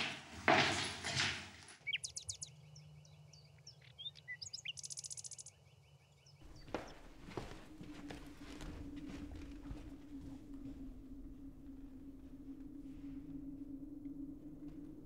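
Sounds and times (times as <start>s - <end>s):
small birds chirping: 1.6s - 13.6s.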